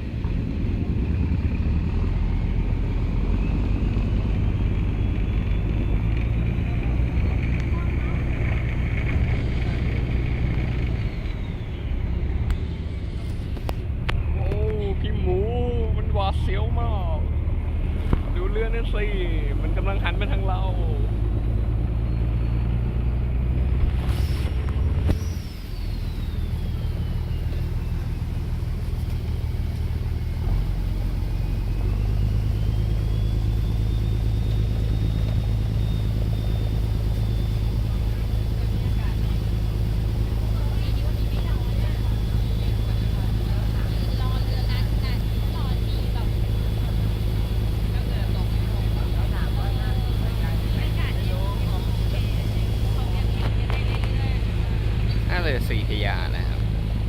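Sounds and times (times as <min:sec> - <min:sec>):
boat engine rumble: 0:00.0 - 0:57.0
faint high whine: 0:23.9 - 0:57.0.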